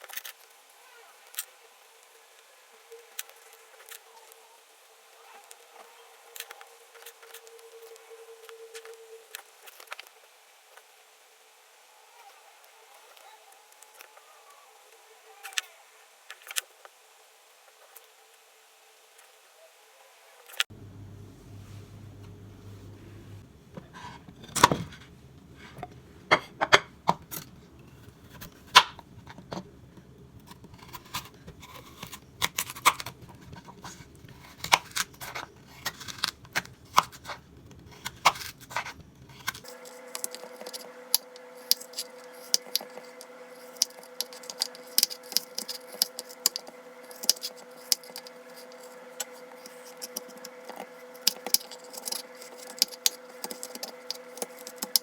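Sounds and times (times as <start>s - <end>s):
electrical hum: 20.7s - 26.9s, 29.0s - 55.0s
objects clicking and clinking: 39.4s - 55.0s.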